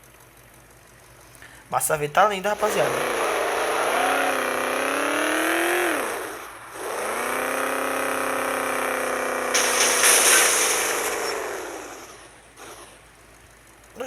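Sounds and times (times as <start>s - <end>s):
electric motor whining: 2.6s - 9.7s
short burst of hiss: 9.6s - 11.6s.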